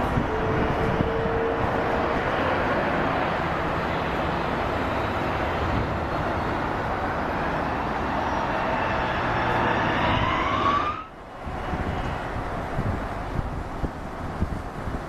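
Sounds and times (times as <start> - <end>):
jet engines roaring: 0.0 - 14.0
engine whine rising in pitch: 7.3 - 12.2.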